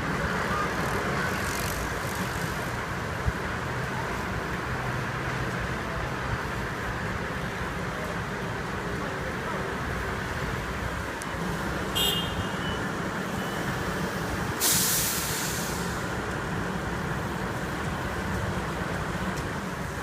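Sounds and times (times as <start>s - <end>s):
air brakes hiss: 14.5s - 16.1s.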